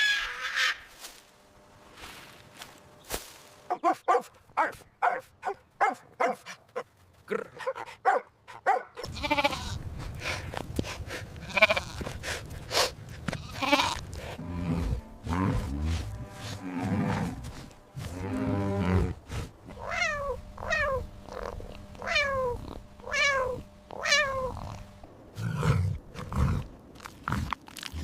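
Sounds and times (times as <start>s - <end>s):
farm animals bleating: 9.0s - 9.8s, 11.4s - 12.1s, 13.3s - 24.9s.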